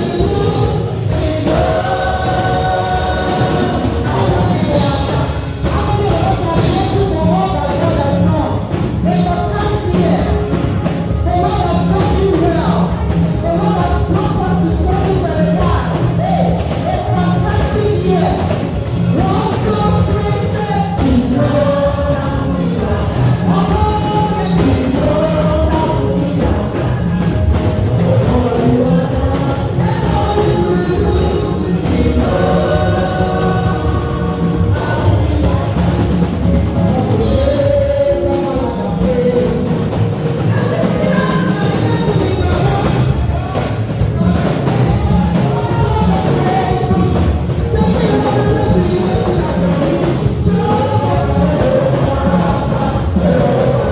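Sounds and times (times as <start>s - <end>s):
choir singing: 0.0s - 6.7s, 18.2s - 36.4s, 42.3s - 53.9s
band playing with a beat: 0.0s - 53.9s.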